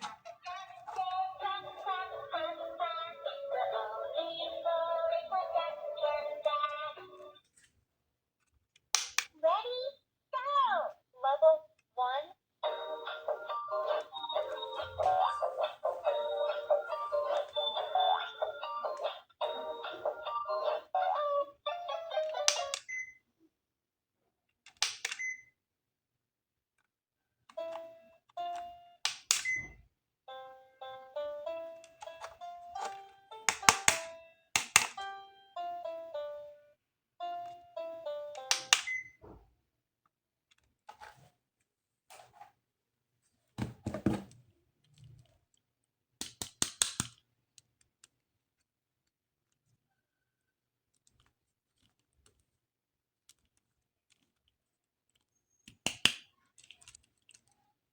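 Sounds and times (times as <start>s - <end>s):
sharp plastic clicks: 8.8s - 9.4s, 24.7s - 25.3s, 29.0s - 29.6s, 33.5s - 35.0s, 46.2s - 48.2s, 55.1s - 57.6s
plastic toy pieces knocking: 33.5s - 35.0s, 46.2s - 47.8s.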